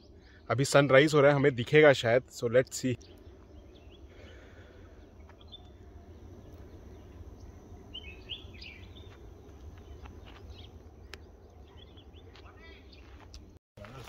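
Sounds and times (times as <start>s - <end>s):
low outdoor rumble: 0.0s - 14.0s
bird chirps: 2.6s - 13.6s.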